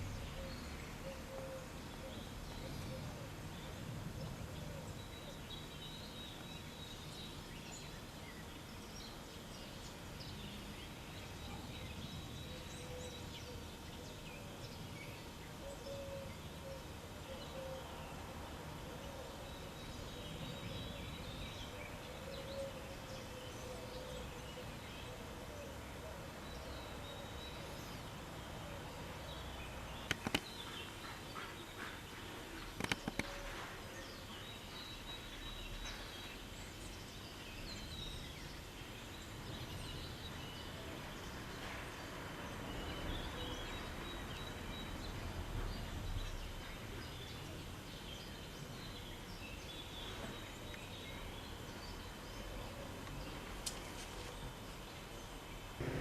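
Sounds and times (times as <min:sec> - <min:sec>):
steady low hum: 0:55.7 - 0:56.0.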